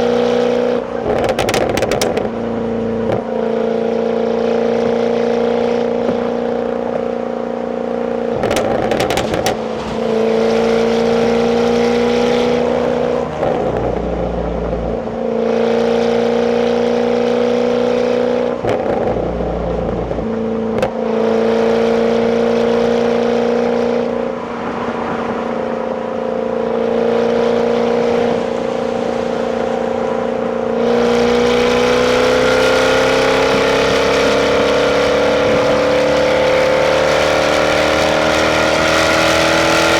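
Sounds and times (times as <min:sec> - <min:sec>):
car engine running: 0:08.3 - 0:15.5, 0:18.6 - 0:20.9.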